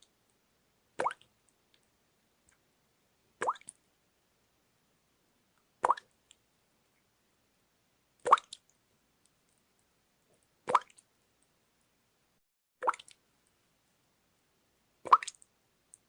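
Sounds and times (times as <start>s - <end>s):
water drops plopping into water: 1.0s - 1.3s, 3.4s - 3.8s, 5.8s - 6.1s, 8.2s - 8.6s, 10.7s - 11.0s, 12.8s - 13.2s, 15.1s - 15.5s.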